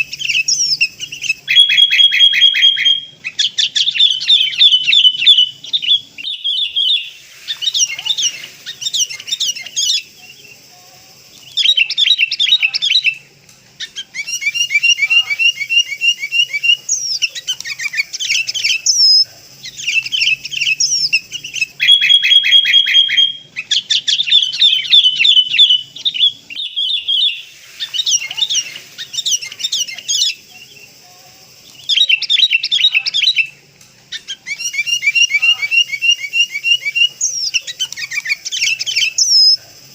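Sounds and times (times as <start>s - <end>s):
birds chirping chatter: 0.0s - 39.9s.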